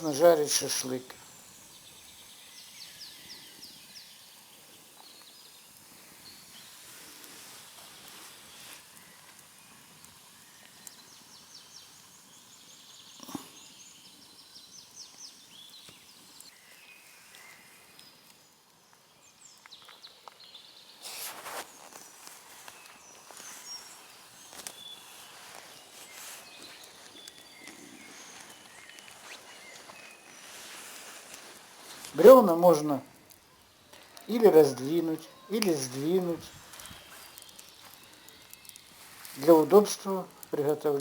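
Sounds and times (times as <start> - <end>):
rustling: 6.0 - 9.4, 21.0 - 41.0
songbirds trilling: 22.7 - 41.0.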